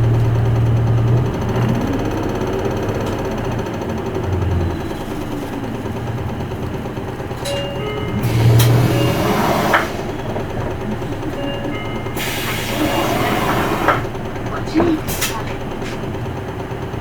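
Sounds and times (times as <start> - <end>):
bus diesel engine running: 0.0 - 17.0
short steady tones: 7.4 - 16.2.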